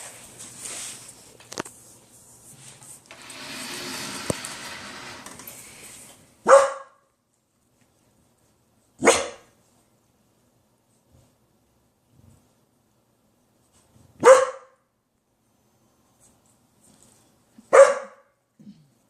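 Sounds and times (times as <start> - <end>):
soft rustling: 0.0 - 6.3.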